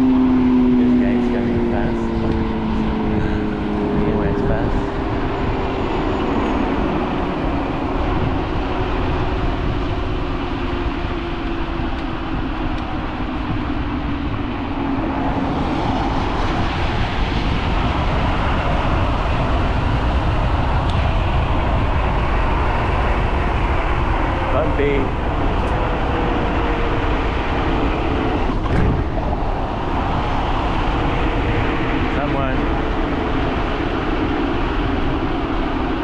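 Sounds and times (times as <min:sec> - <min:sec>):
wind rush: 0:00.0 - 0:36.0
tyre rumble on bumpy road: 0:04.8 - 0:32.1.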